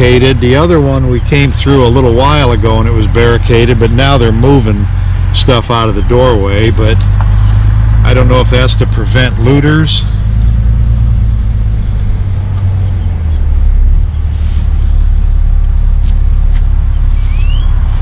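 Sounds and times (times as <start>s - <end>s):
car interior rumble: 0.0s - 18.0s
short rising chirps: 16.9s - 18.0s.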